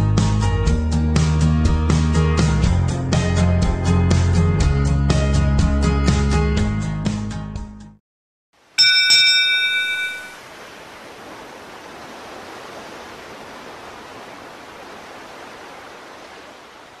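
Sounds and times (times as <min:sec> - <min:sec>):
bright bell-like ding: 0:08.8 - 0:10.4.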